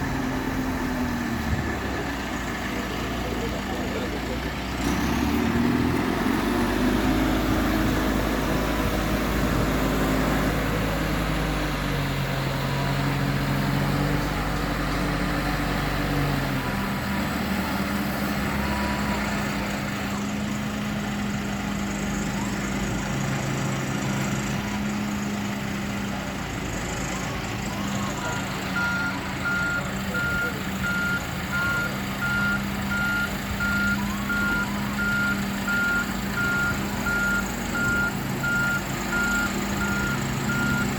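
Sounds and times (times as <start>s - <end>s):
heavy vehicle engine running: 0.0s - 40.9s
reversing alarm beeping: 28.2s - 40.9s.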